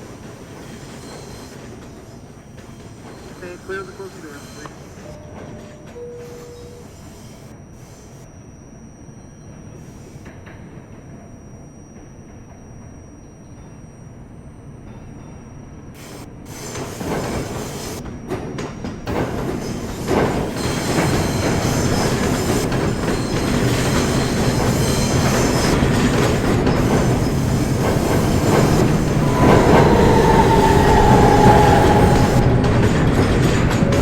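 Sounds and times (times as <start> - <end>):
subway train running on rails: 0.0 - 8.5, 11.9 - 34.0
wheel squeal: 23.0 - 34.0.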